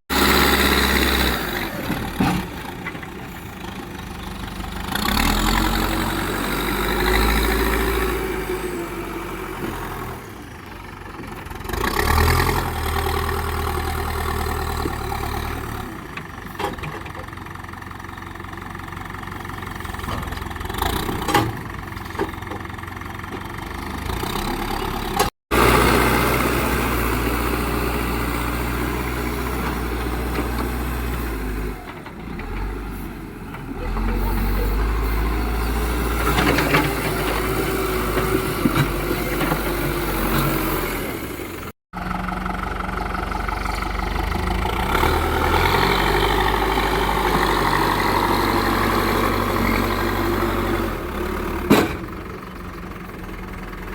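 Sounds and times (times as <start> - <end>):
diesel engines running: 0.1 - 53.9.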